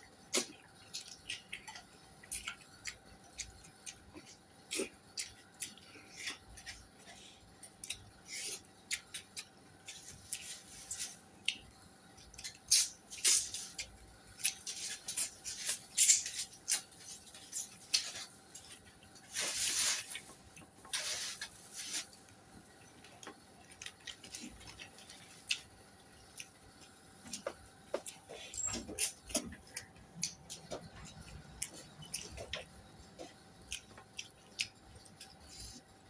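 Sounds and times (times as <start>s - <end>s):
wet chewing and lip-smacking: 0.3s - 10.5s, 23.0s - 36.0s.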